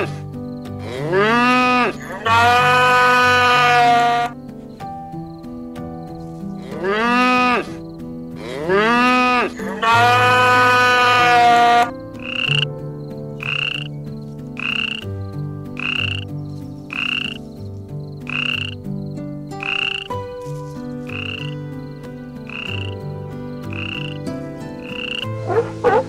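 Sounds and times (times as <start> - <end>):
drawn-out pitched call: 0.8 - 4.4, 8.4 - 12.7, 13.4 - 13.9, 16.9 - 17.4, 19.6 - 20.2, 21.1 - 21.6, 22.5 - 23.0, 23.6 - 26.0.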